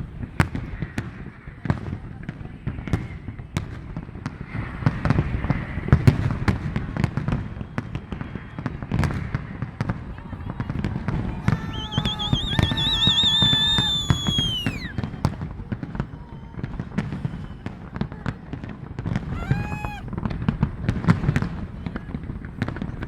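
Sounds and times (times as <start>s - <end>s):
fireworks booms: 8.9s - 15.4s
firework whistle: 10.6s - 15.1s, 19.3s - 20.1s
fireworks crackling pops: 11.4s - 15.0s.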